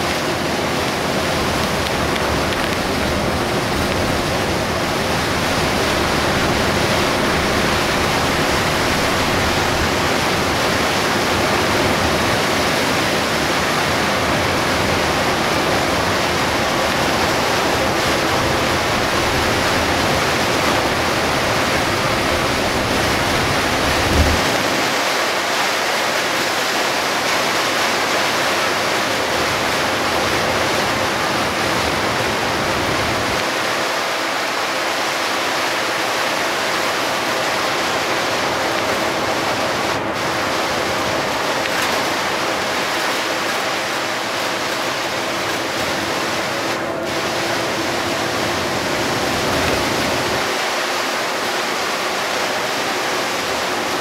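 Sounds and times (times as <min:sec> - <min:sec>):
heavy rain on a bus: 0:00.0 - 0:54.0
tyres hissing through water: 0:00.0 - 0:54.0
deep rumble: 0:21.5 - 0:24.9.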